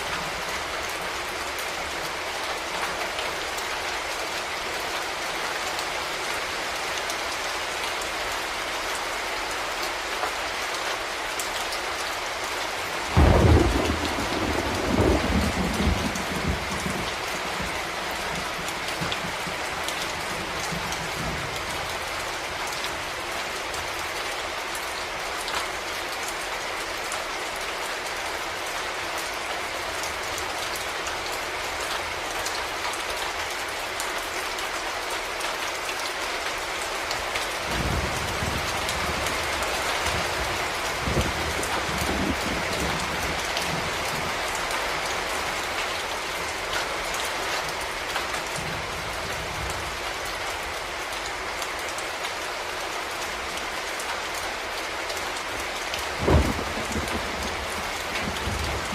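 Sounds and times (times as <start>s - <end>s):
rain falling: 0.0s - 58.9s
thunder clap and rumble: 13.2s - 19.6s, 37.7s - 44.4s, 56.1s - 58.9s.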